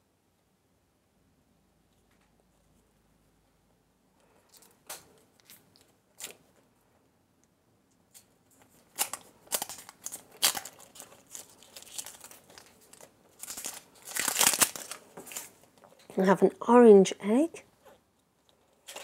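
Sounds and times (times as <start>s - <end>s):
wrapper tearing and crinkling: 8.1s - 16.0s, 18.8s - 19.0s.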